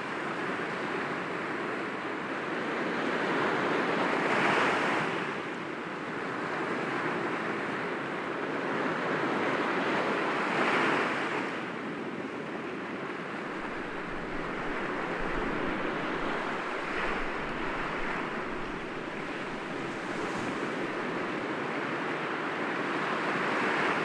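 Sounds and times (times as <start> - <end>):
waves breaking against rocks: 13.4 - 21.3.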